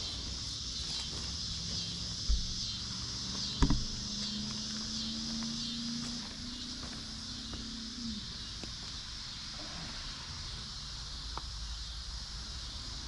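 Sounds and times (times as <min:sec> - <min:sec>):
insects chirring: 0:00.0 - 0:13.0
soft thud: 0:02.3 - 0:02.6, 0:03.6 - 0:04.1
sharp knock: 0:03.6 - 0:04.0.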